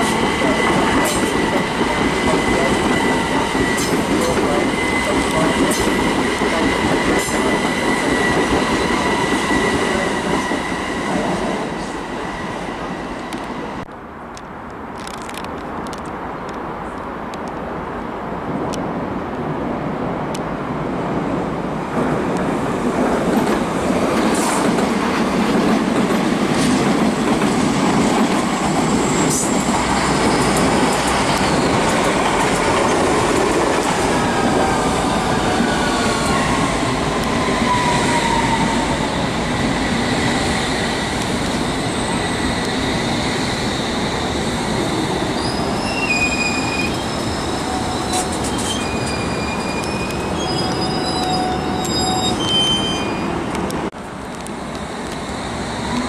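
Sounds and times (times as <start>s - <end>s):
train wheels rumbling on rail: 0.0s - 17.7s, 18.5s - 56.0s
high wheel squeal: 28.4s - 32.4s, 34.1s - 39.3s, 41.6s - 53.5s.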